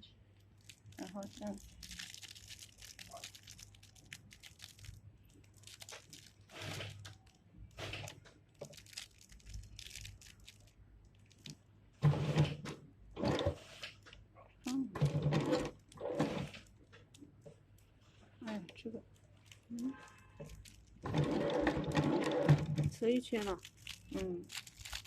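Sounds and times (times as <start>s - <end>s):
person speaking: 1.0s - 1.8s, 14.5s - 15.2s, 22.9s - 24.5s
rustling handling noises: 13.3s - 25.0s.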